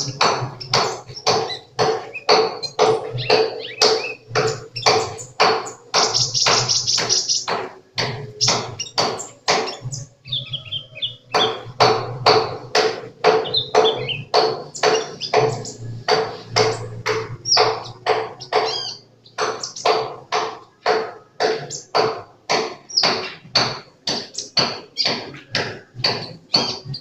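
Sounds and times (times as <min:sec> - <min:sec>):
steady tapping beat: 0:00.0 - 0:27.0
bird chirping high notes: 0:13.4 - 0:20.0.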